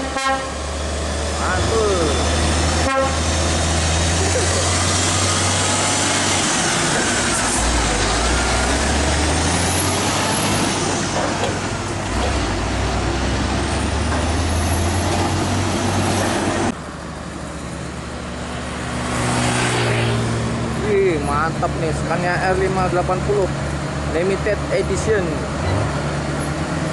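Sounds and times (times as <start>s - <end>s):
diesel truck engine running: 0.0s - 19.4s.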